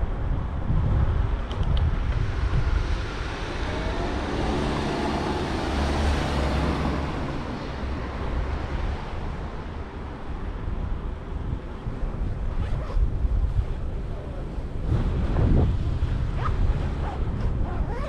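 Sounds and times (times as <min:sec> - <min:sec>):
wind on microphone: 0:00.0 - 0:18.0
motor vehicle passing: 0:02.7 - 0:08.0.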